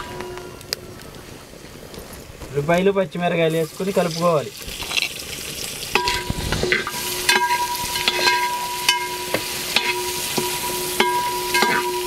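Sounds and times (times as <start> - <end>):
onions sizzling in hot oil: 3.3 - 12.0
metal spatula scraping pot: 6.0 - 12.0.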